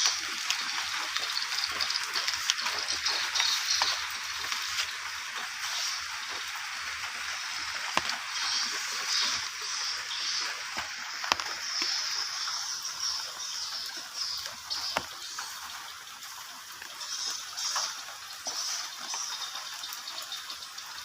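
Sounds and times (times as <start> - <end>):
sharp drip taps: 0.0 - 5.5, 6.2 - 9.6, 10.6 - 15.9
rain falling steadily: 0.0 - 21.0.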